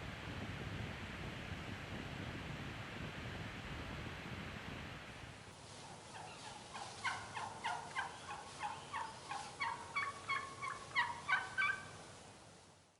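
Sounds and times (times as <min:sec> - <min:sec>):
wild turkeys yelping: 0:05.8 - 0:12.0.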